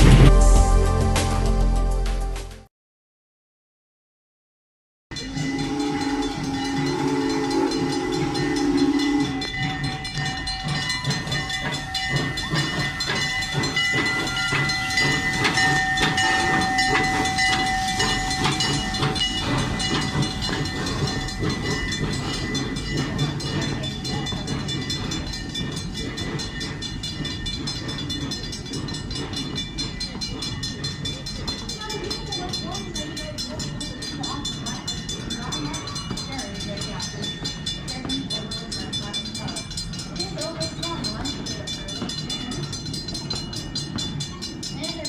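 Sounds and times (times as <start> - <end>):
train rumbling by: 0.0 - 1.7, 5.1 - 45.0
train whistle blast: 5.1 - 9.9
steady high ringing: 5.1 - 45.0
regular clicks of train wheels: 5.2 - 45.0.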